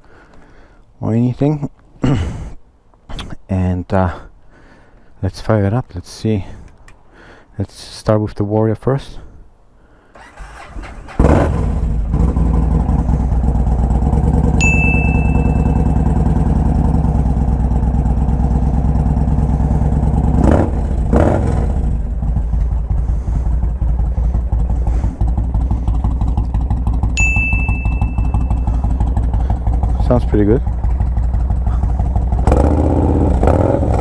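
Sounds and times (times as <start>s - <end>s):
engine throttle blips: 10.2s - 34.0s
motorcycle engine idling: 10.3s - 34.0s
short high beep: 14.6s - 16.3s, 27.2s - 28.8s.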